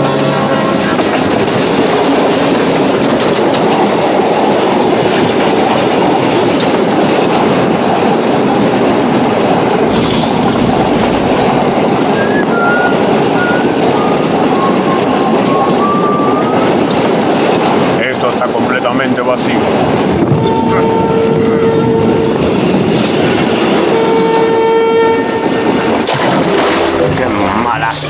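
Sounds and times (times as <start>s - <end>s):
train wheels clattering on rails: 0.0s - 27.6s.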